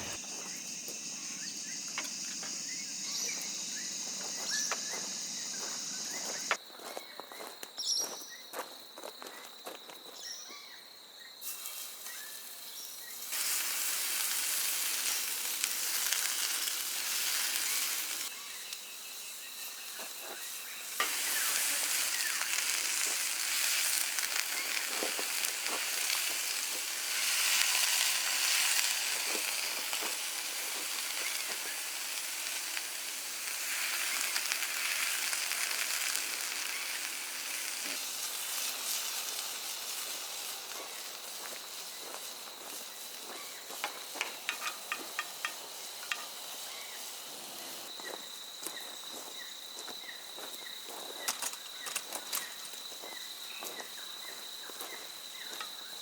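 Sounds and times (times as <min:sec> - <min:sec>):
burger patties sizzling: 0:00.0 - 0:06.5, 0:11.4 - 0:47.9.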